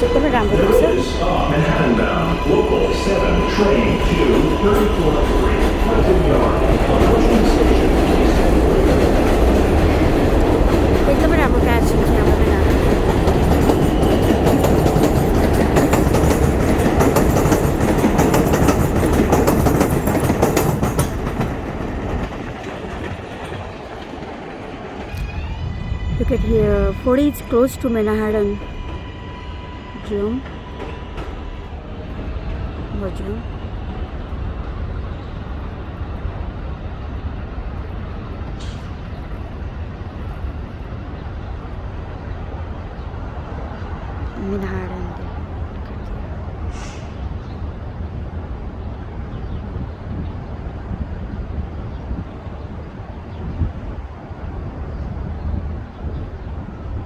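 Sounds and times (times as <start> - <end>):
subway train rumbling: 0.0 - 57.0
wheels clicking over rail joints: 2.0 - 25.3
short hiss: 46.7 - 47.2.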